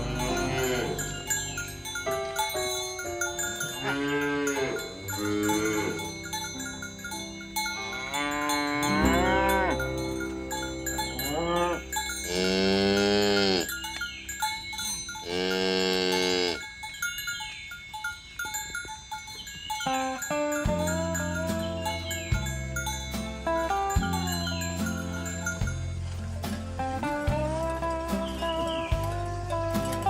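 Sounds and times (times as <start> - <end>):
cattle mooing: 0.0 - 1.2, 3.8 - 6.1, 7.8 - 10.0, 11.2 - 13.8, 15.2 - 16.6
bells tinkling: 0.0 - 30.0.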